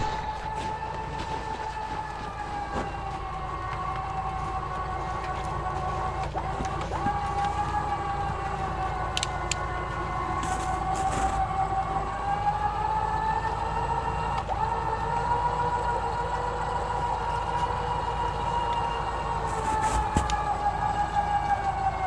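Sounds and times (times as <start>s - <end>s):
low engine rumble: 0.0s - 22.0s
tracked vehicle drive whine: 0.0s - 22.0s
faint clicks: 8.9s - 9.8s.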